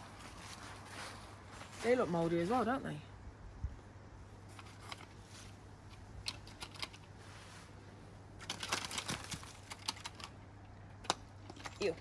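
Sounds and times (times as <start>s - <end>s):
low steady hum: 0.0s - 12.0s
clicks and rustles of rummaging: 4.4s - 7.8s, 8.4s - 12.0s.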